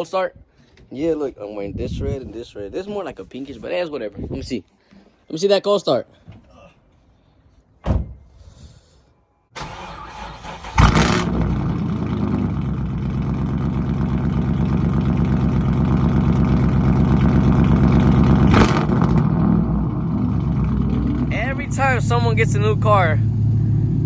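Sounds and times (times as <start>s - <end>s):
car engine starting and idling: 9.6s - 24.0s.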